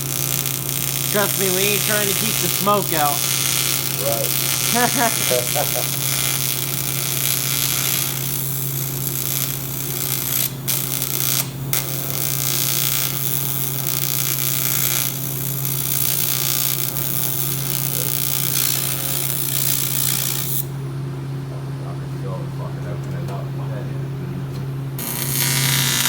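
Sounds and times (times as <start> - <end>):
welding arc crackling hiss: 0.0 - 20.7, 25.0 - 26.0
welding machine hum: 0.0 - 20.8, 25.0 - 26.0.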